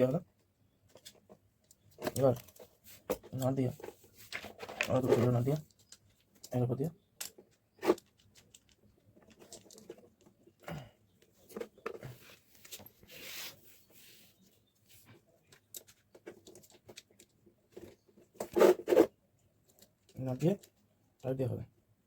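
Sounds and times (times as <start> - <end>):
small clicks and knocks of parts: 0.3 - 13.0, 15.4 - 18.6, 19.5 - 21.4
soft scraping rustle: 11.4 - 15.3.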